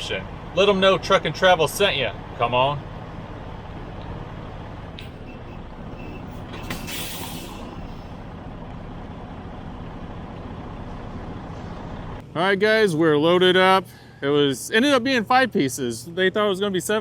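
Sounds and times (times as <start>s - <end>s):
diesel truck engine idling: 0.0s - 12.5s
air brakes hissing: 5.0s - 8.4s.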